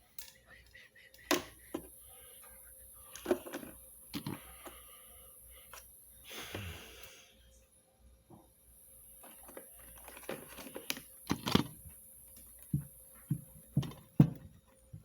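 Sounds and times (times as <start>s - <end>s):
vacuum cleaner parts clicking: 9.3s - 11.8s
heavy thumps: 12.7s - 15.0s.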